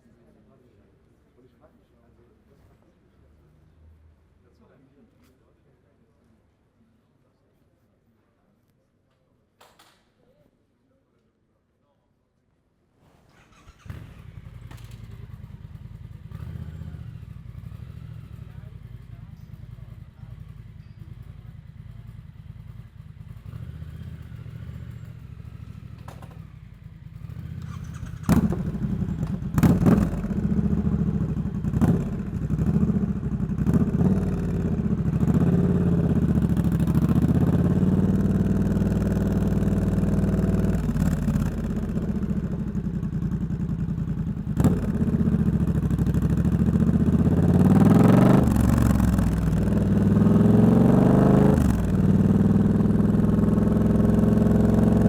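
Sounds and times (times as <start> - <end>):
motorcycle engine revving: 13.3 - 55.0.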